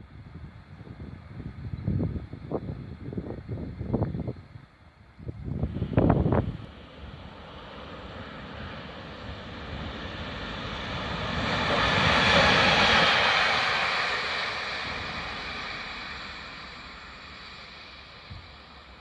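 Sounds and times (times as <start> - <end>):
train passing with rushing noise: 5.3 - 19.0.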